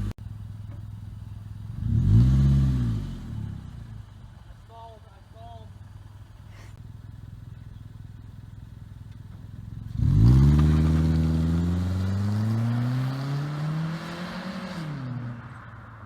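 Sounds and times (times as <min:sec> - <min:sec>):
car engine accelerating: 0:00.0 - 0:04.4, 0:06.8 - 0:16.0.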